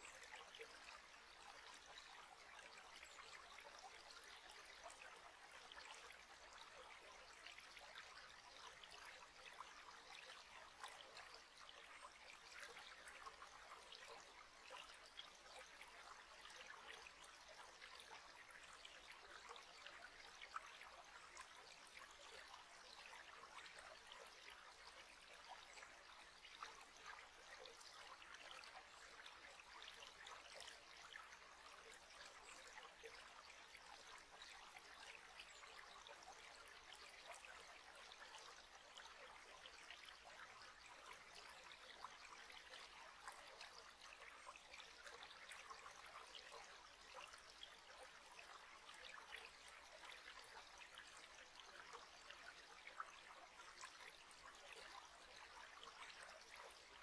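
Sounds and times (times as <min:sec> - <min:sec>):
stream trickling: 0:00.0 - 0:57.0.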